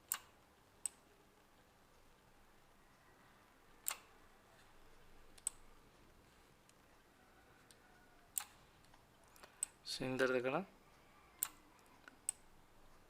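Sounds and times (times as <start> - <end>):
computer mouse clicks: 0.0 - 1.0, 3.8 - 4.1, 5.3 - 5.6, 7.7 - 9.8, 11.3 - 12.5.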